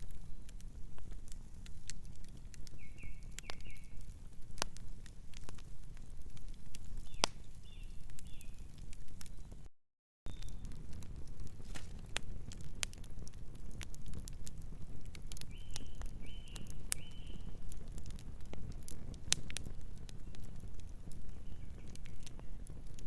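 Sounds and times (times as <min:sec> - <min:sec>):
wood fire crackling: 0:00.0 - 0:09.7, 0:10.3 - 0:23.0
distant bird calls: 0:02.7 - 0:04.0, 0:15.5 - 0:17.5.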